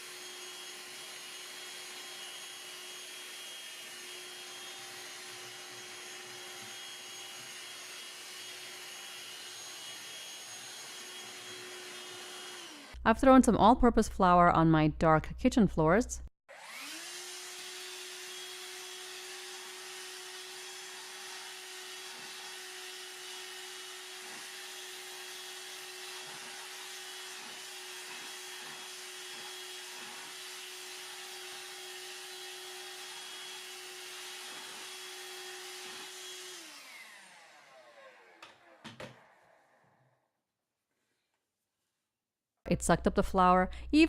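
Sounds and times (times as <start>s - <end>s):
handheld vacuum motor whine: 0.0s - 13.0s, 16.5s - 40.1s
vacuum motor spinning down: 16.5s - 18.1s, 36.5s - 40.0s.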